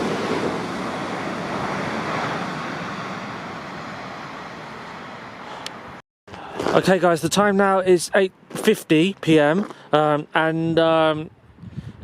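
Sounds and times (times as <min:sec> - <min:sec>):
electric train passing: 0:00.0 - 0:06.0.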